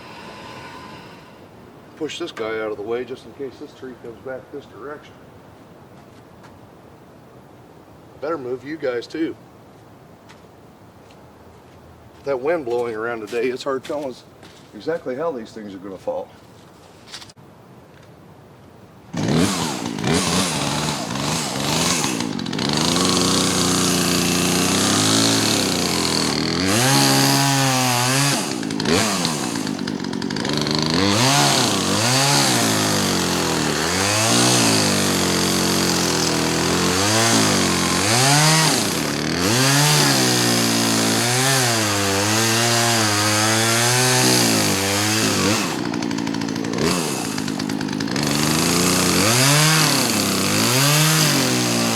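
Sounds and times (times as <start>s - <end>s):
chainsaw revving: 0.0s - 1.4s, 19.1s - 51.9s.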